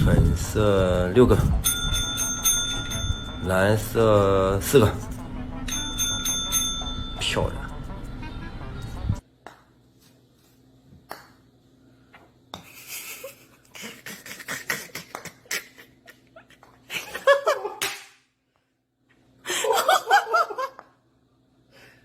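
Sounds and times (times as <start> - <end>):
people laughing: 12.7 - 17.8, 19.5 - 20.8.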